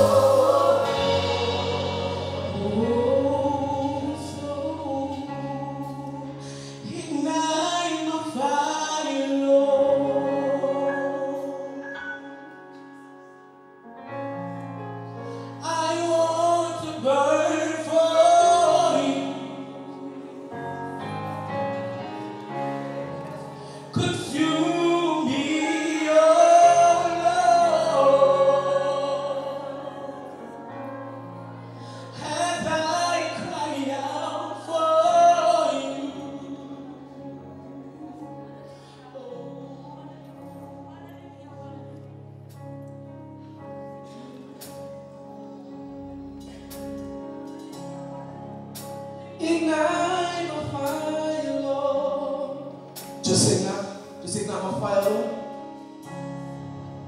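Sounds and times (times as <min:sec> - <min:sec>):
sustained chords: 0:00.0 - 0:05.0
gospel singing voices: 0:00.0 - 0:12.0, 0:21.8 - 0:41.0.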